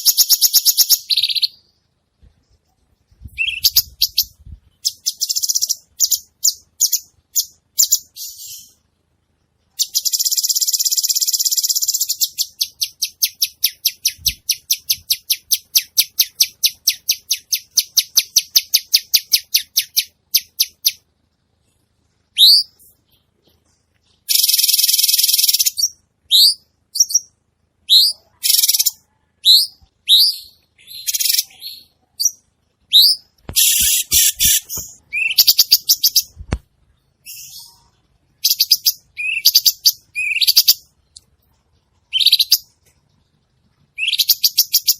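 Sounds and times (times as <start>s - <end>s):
songbird singing: 0.0s - 8.8s, 9.5s - 44.9s.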